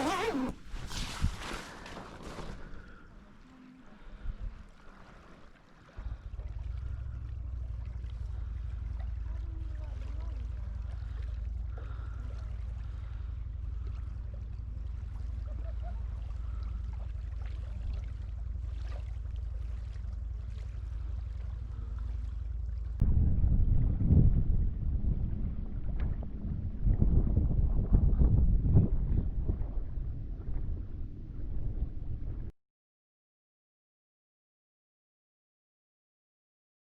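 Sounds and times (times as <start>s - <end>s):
wind buffeting microphone: 0.0s - 2.9s, 23.0s - 32.5s.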